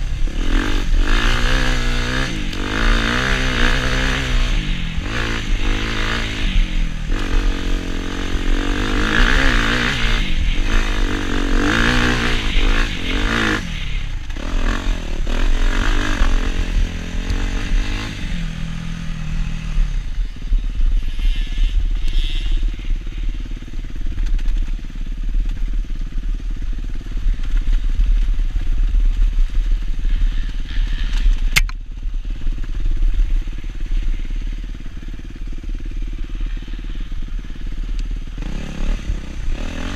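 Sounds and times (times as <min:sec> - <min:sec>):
dirt bike engine revving: 0:00.0 - 0:25.1, 0:32.2 - 0:39.9
sharp click: 0:31.1 - 0:31.8.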